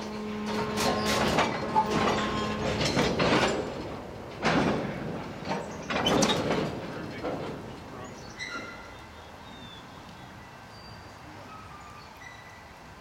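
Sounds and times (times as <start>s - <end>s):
metallic clanks of train wheels: 0.0s - 8.9s
low locomotive hum: 0.0s - 13.0s.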